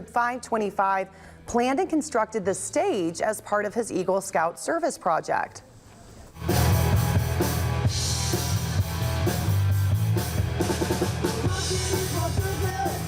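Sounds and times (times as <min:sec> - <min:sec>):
drum kit: 0:06.3 - 0:13.0
bass line: 0:06.4 - 0:13.0
live rock band playing: 0:06.4 - 0:13.0.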